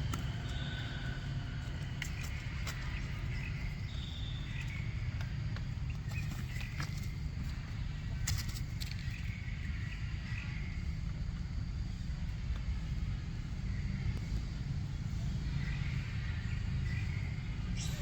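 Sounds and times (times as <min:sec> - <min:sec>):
faint high chirps: 0:17.7 - 0:18.0.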